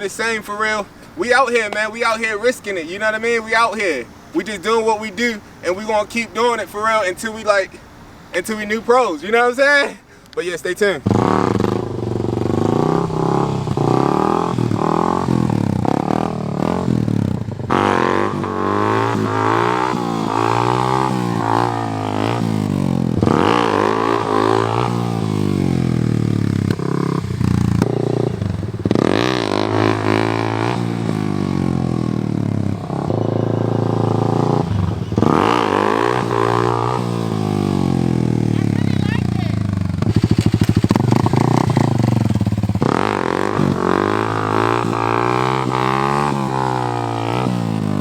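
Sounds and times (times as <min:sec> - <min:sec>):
dirt bike engine revving: 0:11.0 - 0:48.0.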